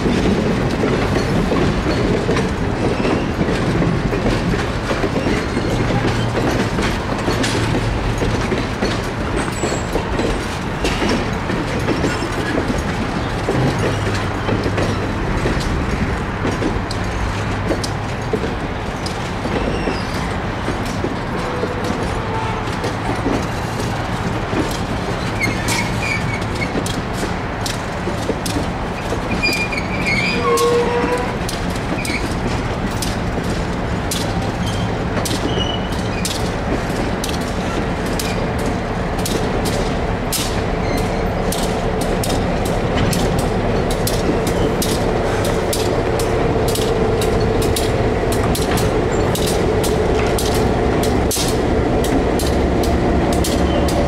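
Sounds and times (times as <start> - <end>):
rumble of running train: 0.0 - 54.0
wheels clicking over rail joints: 0.0 - 54.0.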